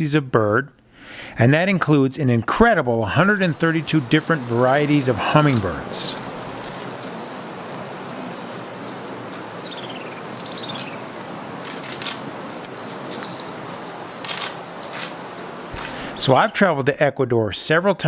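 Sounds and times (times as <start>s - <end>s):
steady background hiss: 0.0s - 18.0s
small birds chirping: 3.2s - 16.8s.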